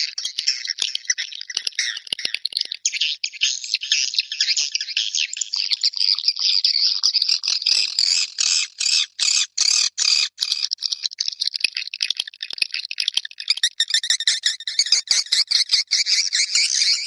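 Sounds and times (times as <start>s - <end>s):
swiftlets chirping and twittering: 7.3s - 11.7s, 13.3s - 17.0s.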